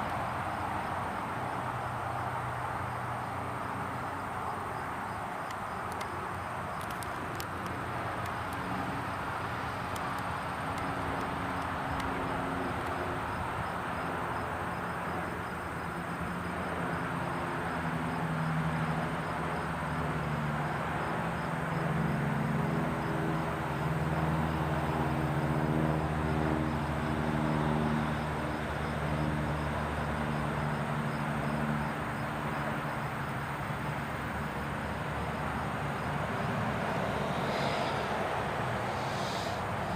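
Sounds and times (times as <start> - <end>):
propeller plane droning overhead: 0.0 - 39.9
steady background hiss: 30.4 - 39.9.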